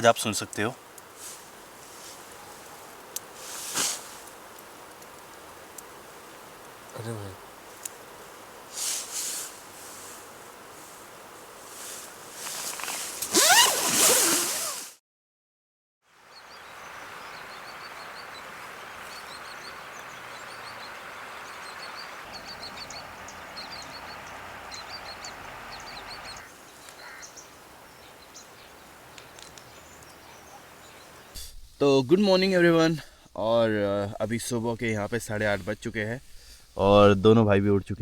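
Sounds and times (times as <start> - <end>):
small birds chirping: 0.0 - 14.8, 16.2 - 31.8
river water rushing: 16.3 - 26.6.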